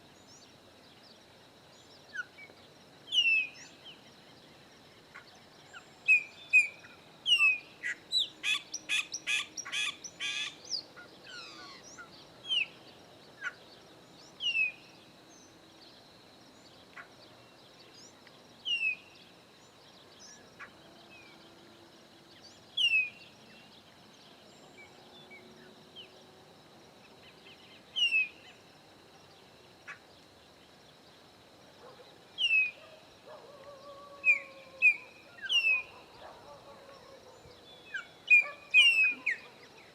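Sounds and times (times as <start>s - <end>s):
birds whistling calls: 34.2s - 36.2s, 37.9s - 39.6s.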